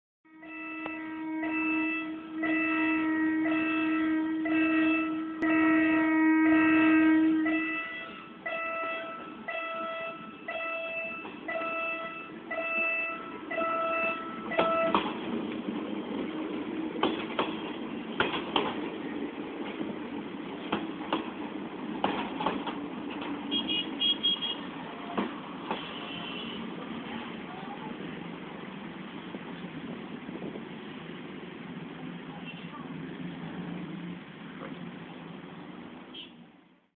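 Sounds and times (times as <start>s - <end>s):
train horn: 0.3s - 15.1s
train rumbling past: 0.3s - 36.9s
level-crossing warning bell: 0.4s - 15.0s
wheels clacking over rail joints: 9.2s - 24.0s, 24.6s - 36.0s.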